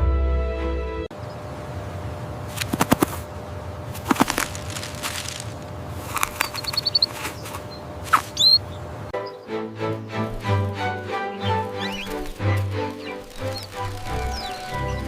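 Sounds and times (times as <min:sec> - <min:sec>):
wings flapping: 0:02.5 - 0:03.3, 0:03.9 - 0:08.6, 0:10.2 - 0:15.0
high bird chirps: 0:06.3 - 0:09.5, 0:11.2 - 0:15.0
sweeping bird call: 0:06.3 - 0:15.0.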